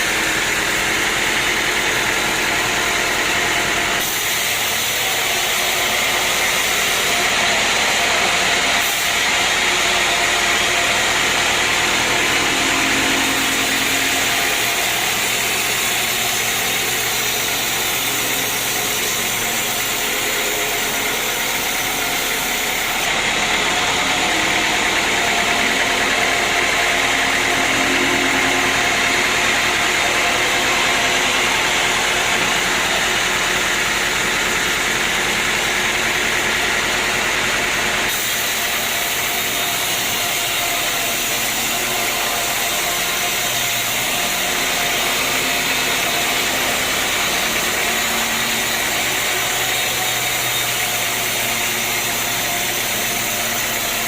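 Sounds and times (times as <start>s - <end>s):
sawmill machinery humming: 0.0s - 54.0s
steady machine tones: 1.9s - 35.3s.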